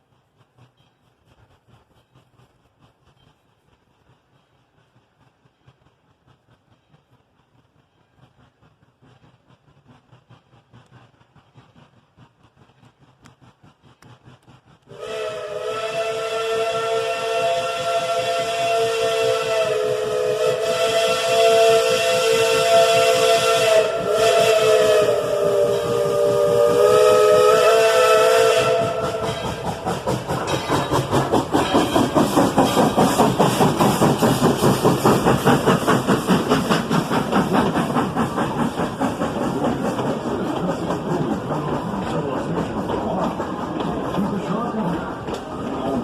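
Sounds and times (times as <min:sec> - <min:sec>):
locomotive exhaust chuffing: 0:00.0 - 0:46.0
steam locomotive chime whistle: 0:14.9 - 0:29.8.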